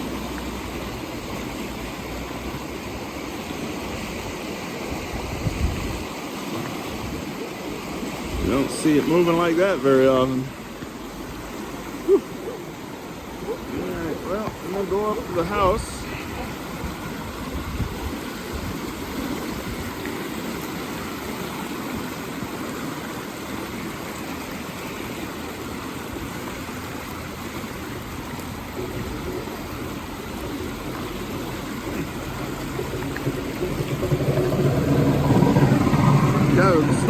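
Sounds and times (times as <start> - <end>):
creek rushing: 0.0 - 37.0
vehicle engine approaching: 28.6 - 37.0.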